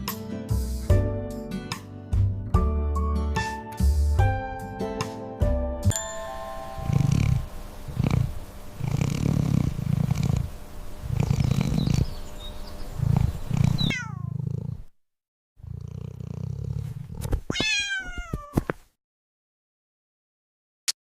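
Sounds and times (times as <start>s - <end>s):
cat purring: 6.8s - 12.2s, 12.9s - 14.9s, 15.6s - 17.4s
cat meowing: 13.9s - 14.3s, 17.5s - 18.7s.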